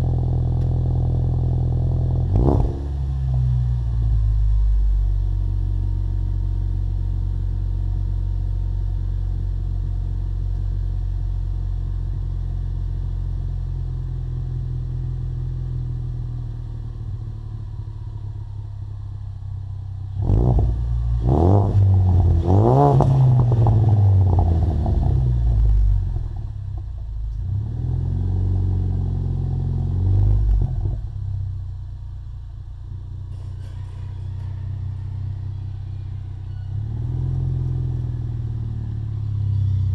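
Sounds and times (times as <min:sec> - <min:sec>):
car engine revving: 0:00.0 - 0:06.3, 0:20.0 - 0:31.3
car engine idling: 0:00.0 - 0:39.9.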